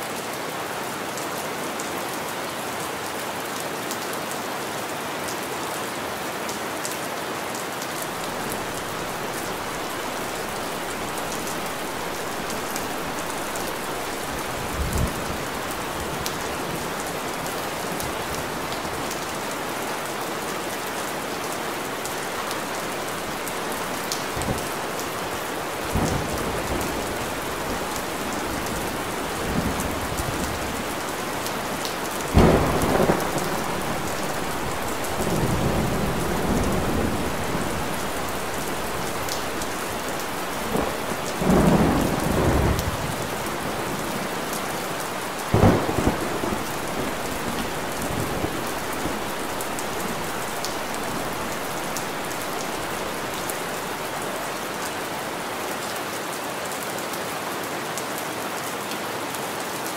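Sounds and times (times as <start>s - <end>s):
heavy rain hissing: 8.0s - 55.5s.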